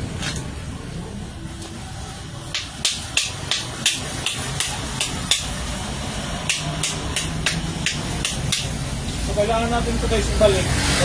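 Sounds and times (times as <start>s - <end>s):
hammer strikes: 2.5s - 9.1s.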